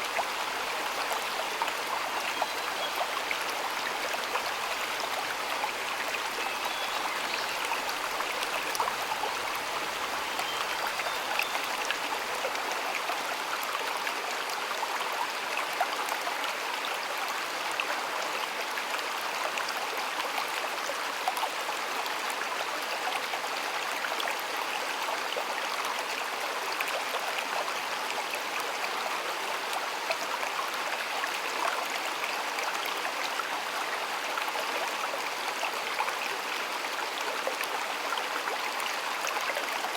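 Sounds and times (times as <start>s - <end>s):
shallow stream running: 0.0s - 39.9s.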